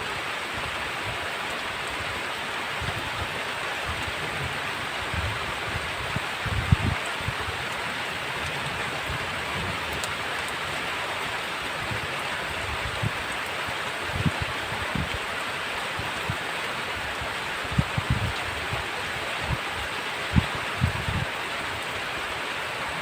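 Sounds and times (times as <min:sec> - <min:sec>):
heavy rain: 0:00.0 - 0:23.0.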